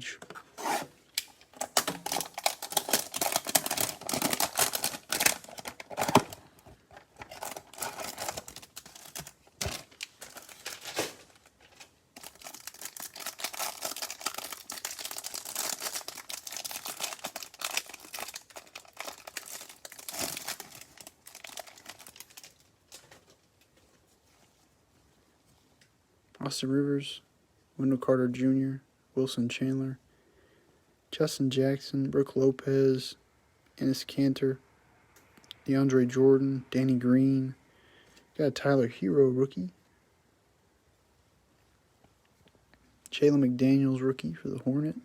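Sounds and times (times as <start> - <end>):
plastic wrapper crinkling and tearing: 0.6 - 23.8.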